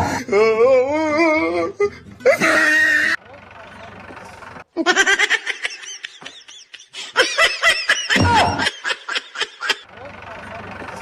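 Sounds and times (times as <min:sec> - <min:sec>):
high-pitched giggling laughter: 0:04.8 - 0:09.9.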